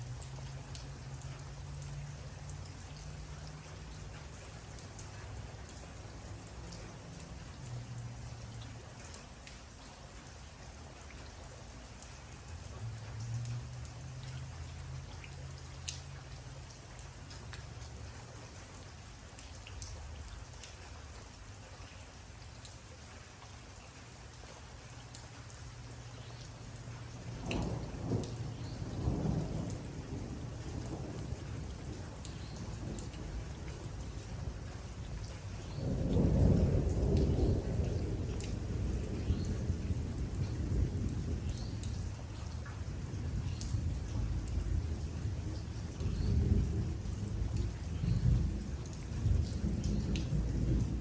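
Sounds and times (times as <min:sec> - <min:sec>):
raindrops ticking: 0:00.0 - 0:51.0
steady rain falling: 0:00.0 - 0:51.0
low thunder rumble: 0:26.6 - 0:51.0.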